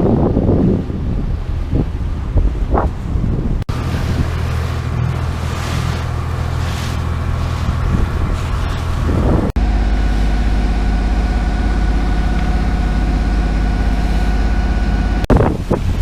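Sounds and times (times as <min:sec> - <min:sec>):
boat engine droning: 0:00.0 - 0:16.0
water noise: 0:00.0 - 0:16.0
wind: 0:00.0 - 0:16.0
faint engine whine: 0:03.6 - 0:15.3.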